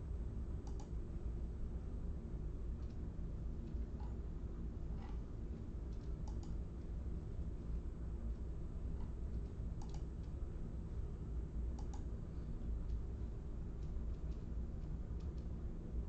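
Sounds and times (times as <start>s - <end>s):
steady low hum: 0.0s - 16.0s
faint short clicks: 0.6s - 0.9s, 5.9s - 6.6s, 9.8s - 10.4s, 11.8s - 12.1s.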